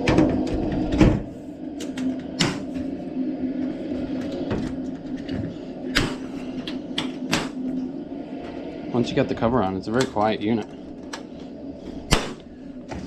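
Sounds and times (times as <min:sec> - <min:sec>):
boiler humming: 0:00.0 - 0:13.0.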